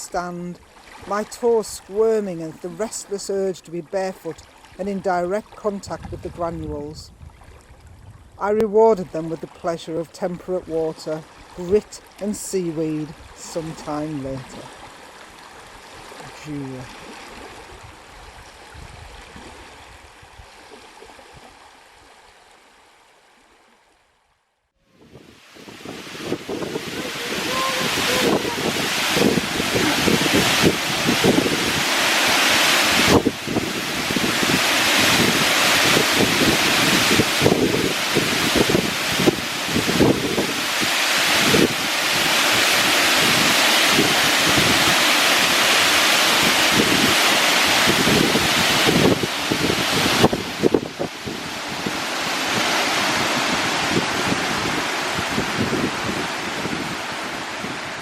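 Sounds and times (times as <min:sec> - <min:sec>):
running water rushing: 0:00.0 - 0:07.9, 0:08.8 - 0:23.8, 0:24.9 - 0:58.0
wind buffeting microphone: 0:05.8 - 0:08.4, 0:17.5 - 0:20.4, 0:25.0 - 0:58.0.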